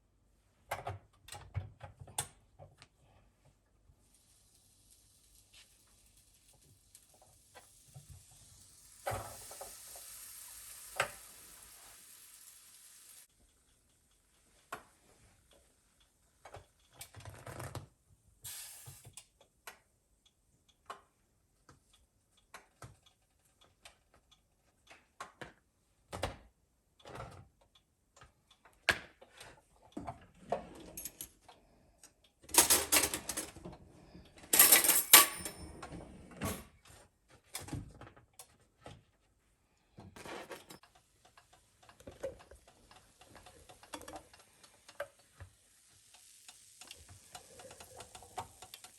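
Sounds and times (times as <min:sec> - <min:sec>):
utensils and dishes clicking: 0:32.5 - 0:33.6, 0:34.5 - 0:35.7, 0:40.4 - 0:45.4.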